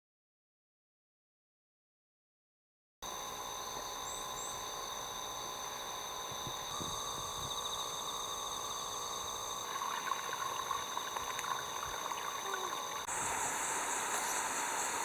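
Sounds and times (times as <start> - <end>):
high-pitched insect chorus: 3.1 - 15.0.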